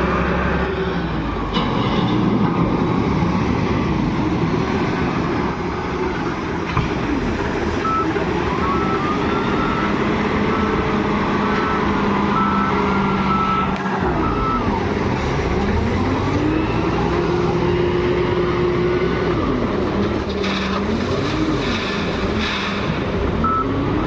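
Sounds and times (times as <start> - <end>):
heavy diesel engine working: 0.0 - 24.0
reversing alarm beeping: 7.8 - 14.8, 23.4 - 23.8.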